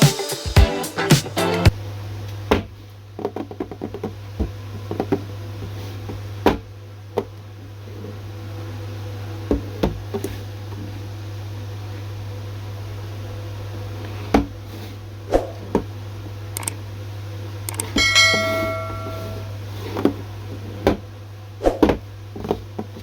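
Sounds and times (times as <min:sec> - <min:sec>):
steady low hum: 0:14.9 - 0:20.6.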